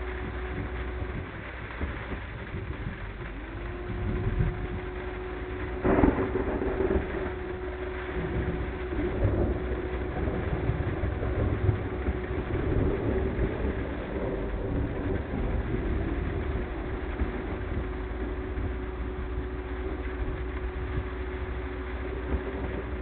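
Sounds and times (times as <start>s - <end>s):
car engine and road noise: 0.0s - 23.0s
rain hiss: 0.0s - 23.0s
sharp thunder crack: 5.8s - 18.0s.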